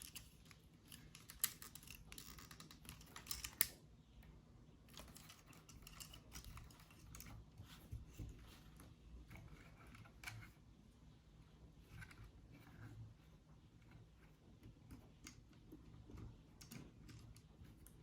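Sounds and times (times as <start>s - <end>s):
plastic parts clicking and rustling: 0.0s - 3.8s, 4.9s - 8.6s.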